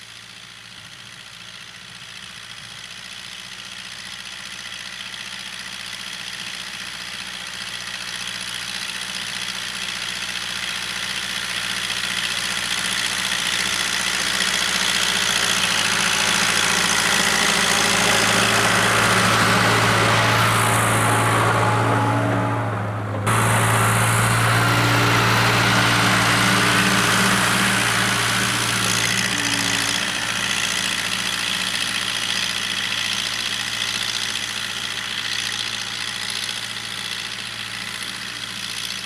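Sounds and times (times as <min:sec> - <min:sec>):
diesel engine running: 0:11.8 - 0:39.0.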